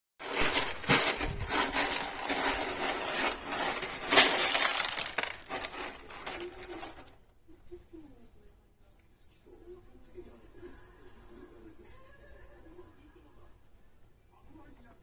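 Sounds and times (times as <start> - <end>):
kitten scratching litter: 0.2 - 7.2.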